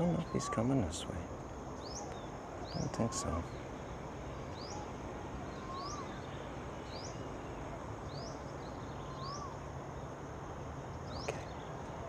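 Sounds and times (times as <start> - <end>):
bird chirping: 0.0 - 1.1, 1.7 - 10.2, 10.9 - 12.0
outdoor background hum: 0.0 - 12.0
bird whistling: 4.6 - 6.4, 8.9 - 9.6.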